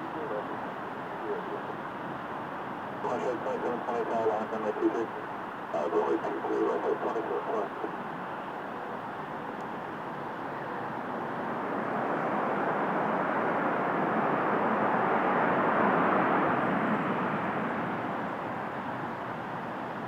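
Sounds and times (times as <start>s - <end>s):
jet plane passing: 9.9s - 19.6s.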